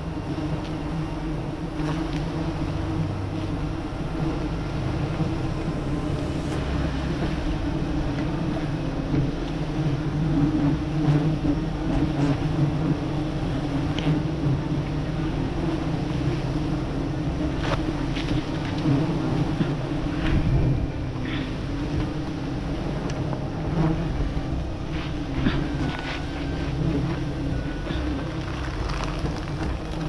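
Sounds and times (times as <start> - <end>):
honeybees buzzing: 0.0 - 2.2, 2.9 - 4.4, 5.0 - 9.4.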